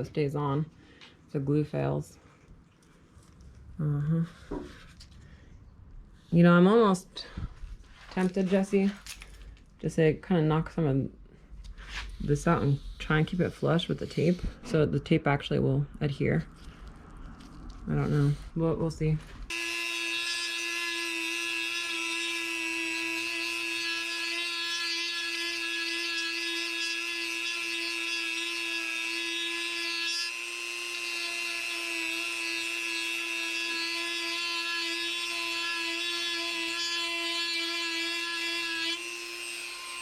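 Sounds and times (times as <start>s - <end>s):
power tool motor whine: 19.5s - 36.5s, 38.8s - 40.0s.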